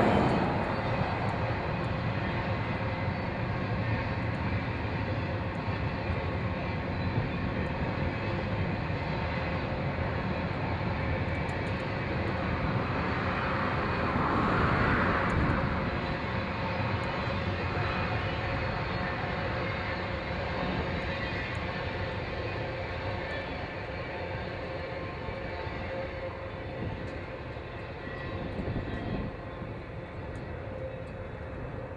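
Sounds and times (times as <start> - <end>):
train rumbling past: 0.0 - 31.9.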